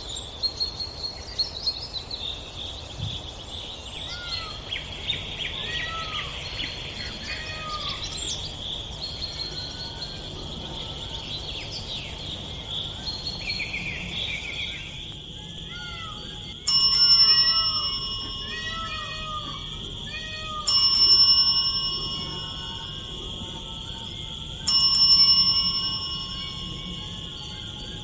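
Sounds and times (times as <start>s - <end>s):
bird chirps: 0.0s - 28.0s
high insect drone: 0.0s - 28.0s
ringing bell-like tone: 4.1s - 28.0s.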